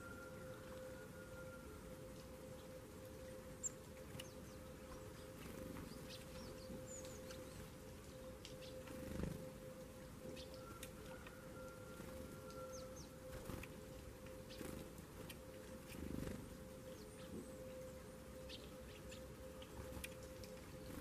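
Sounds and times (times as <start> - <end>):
songbirds chirping: 0.0 - 21.0
steady low hum: 0.0 - 21.0.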